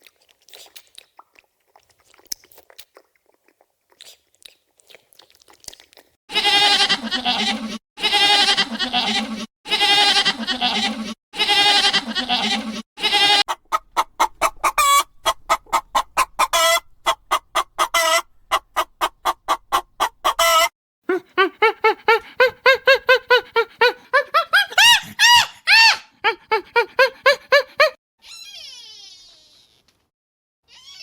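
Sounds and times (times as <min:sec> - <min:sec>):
goat bleating: 0:06.3 - 0:18.3
chicken clucking: 0:13.1 - 0:20.7
short pitched calls: 0:13.5 - 0:20.7.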